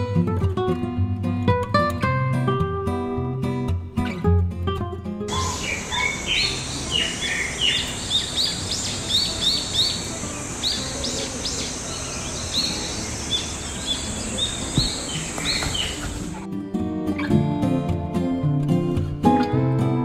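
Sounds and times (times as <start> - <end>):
birds chirping: 5.3 - 16.4
steady background hiss: 5.3 - 16.4.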